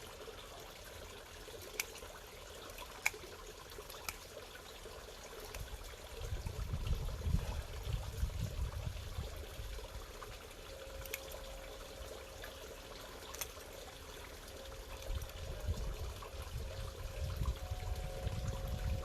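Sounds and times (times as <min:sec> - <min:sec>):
pond water bubbling: 0:00.0 - 0:19.0.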